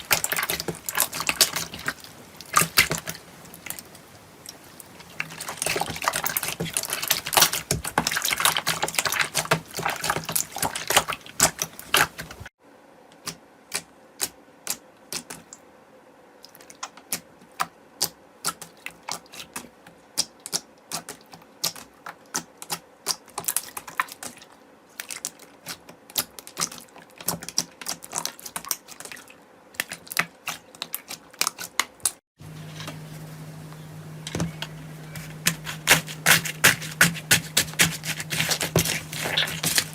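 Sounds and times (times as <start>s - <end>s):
slime squishing with crackling clicks: 16.5s - 24.4s, 25.0s - 32.2s.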